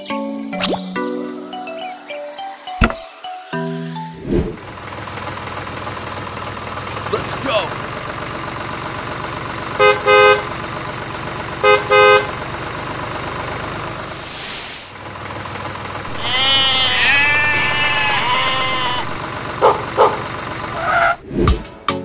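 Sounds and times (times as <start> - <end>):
toy tractor engine hum: 4.6 - 14.2, 15.0 - 20.9
horn toots: 9.8 - 10.5, 11.6 - 12.3
bleating animal call: 16.1 - 19.2.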